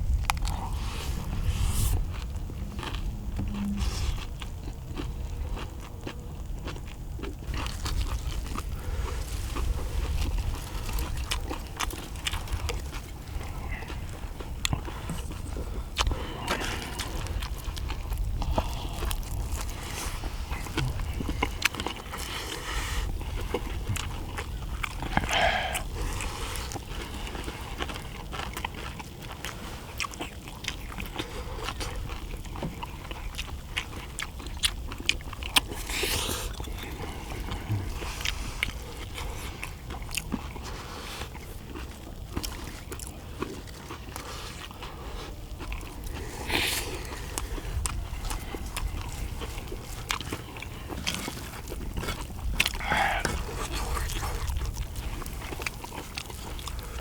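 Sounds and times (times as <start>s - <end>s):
low rumble: 0.0s - 21.7s
people chewing food: 0.0s - 57.0s.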